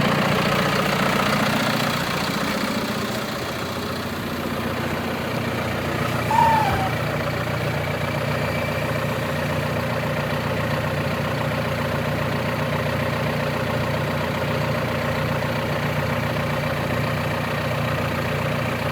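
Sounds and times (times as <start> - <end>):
tractor engine idling: 0.0 - 18.9
high squeak gliding downward: 5.8 - 9.4.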